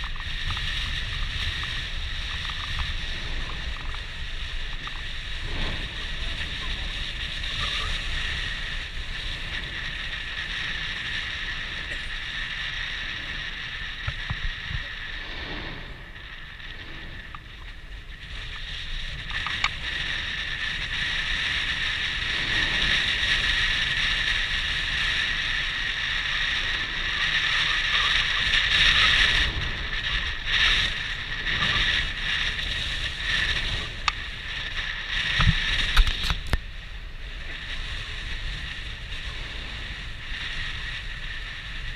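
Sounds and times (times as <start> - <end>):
wind noise on microphone: 0.0 - 41.9
camera cord clicks: 35.9 - 36.6.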